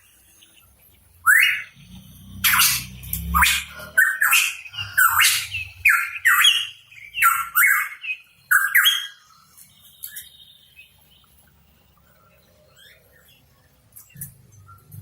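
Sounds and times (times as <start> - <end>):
bird harsh calls: 0.3 - 11.3.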